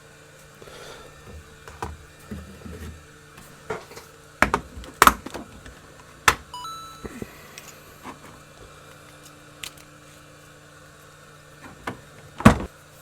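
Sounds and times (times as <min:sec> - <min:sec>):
rising electronic beep: 0:06.6 - 0:08.0.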